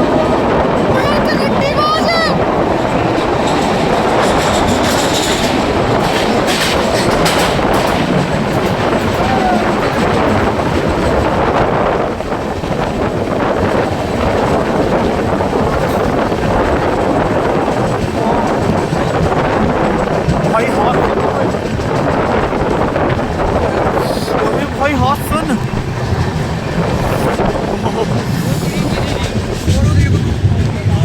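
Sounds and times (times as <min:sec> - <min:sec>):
train wheels rumbling on rails: 0:00.0 - 0:31.0
sharp clacks: 0:03.4 - 0:09.2.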